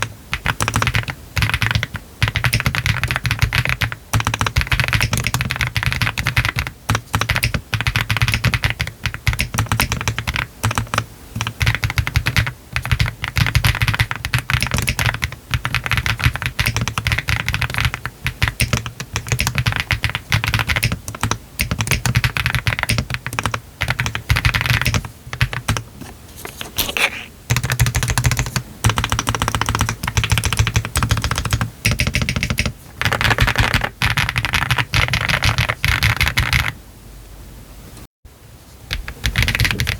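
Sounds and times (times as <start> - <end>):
mechanical keyboard typing: 0.0 - 25.9, 26.5 - 36.8, 38.9 - 39.9.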